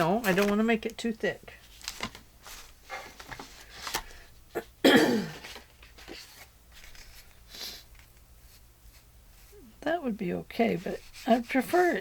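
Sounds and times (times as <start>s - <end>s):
paper being handled: 0.0s - 1.0s, 1.6s - 4.2s, 10.6s - 12.0s
woman coughing: 4.6s - 5.4s.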